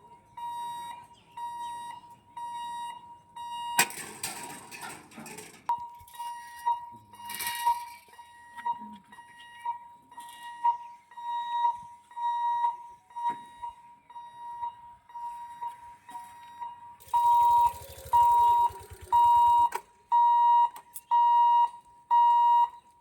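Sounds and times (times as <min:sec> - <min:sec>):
level crossing alarm beeping: 0:00.0 - 0:04.2, 0:05.7 - 0:22.9
vehicle engine rumbling past: 0:17.0 - 0:20.0.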